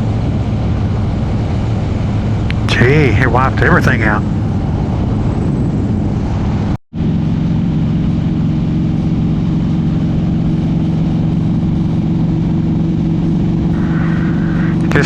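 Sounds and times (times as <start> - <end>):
wind and road noise: 0.0 - 15.0
motorcycle engine cruising: 3.8 - 15.0.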